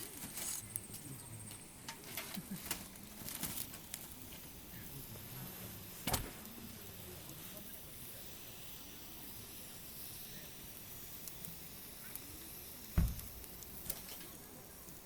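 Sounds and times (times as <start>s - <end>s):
burning wood popping: 0.0s - 15.0s
campfire hissing: 0.0s - 15.0s.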